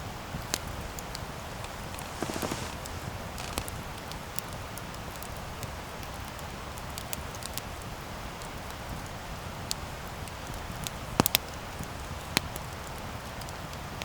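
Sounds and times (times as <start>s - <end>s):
burning wood crackling and popping: 0.6s - 5.0s
campfire flames rushing: 0.9s - 4.4s.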